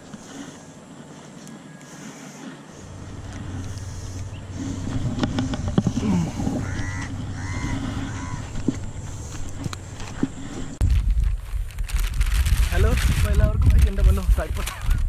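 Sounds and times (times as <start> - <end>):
crow cawing: 5.9 - 9.4.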